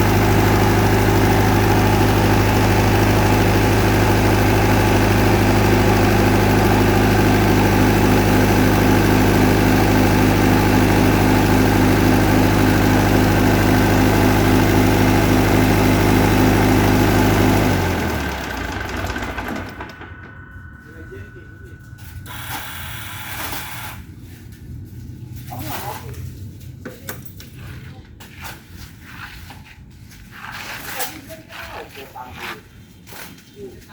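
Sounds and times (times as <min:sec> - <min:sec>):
diesel generator running: 0:00.0 - 0:26.4.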